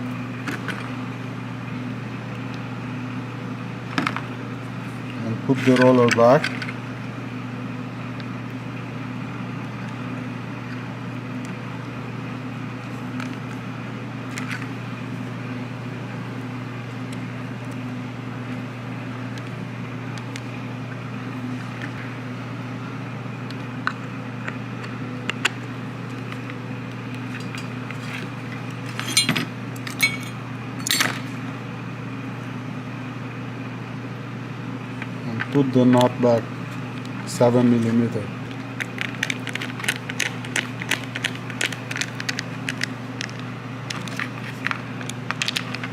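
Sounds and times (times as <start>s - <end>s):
low background hum: 0.0s - 45.9s
metal parts and tools clinking: 28.9s - 31.2s.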